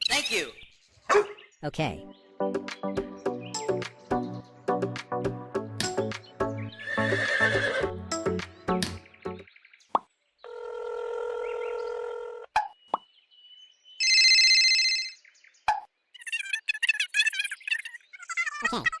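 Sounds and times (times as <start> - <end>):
background music: 1.9 - 9.4.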